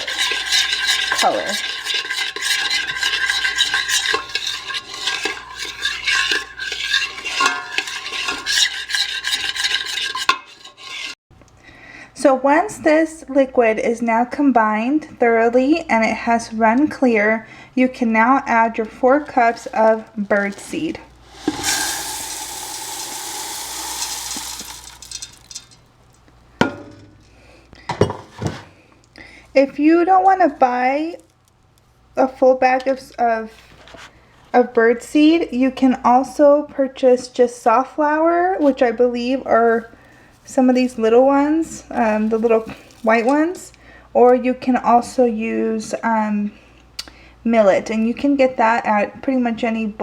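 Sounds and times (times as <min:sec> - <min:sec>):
utensil scraping metal pot: 0:00.0 - 0:11.2, 0:18.5 - 0:25.9, 0:41.0 - 0:43.8
birdseed pouring: 0:19.4 - 0:25.8, 0:42.0 - 0:43.5.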